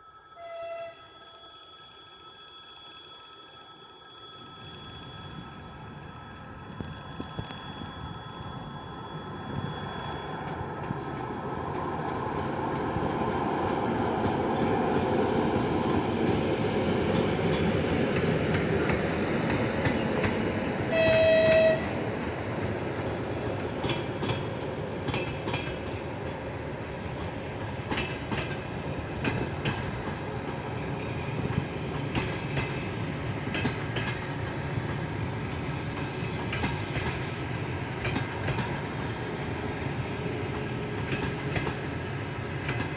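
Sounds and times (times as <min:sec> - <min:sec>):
train horn blast: 0:00.4 - 0:01.3, 0:20.9 - 0:22.1
train rumble: 0:04.6 - 0:42.9
wheels clicking over rail joints: 0:23.5 - 0:35.1.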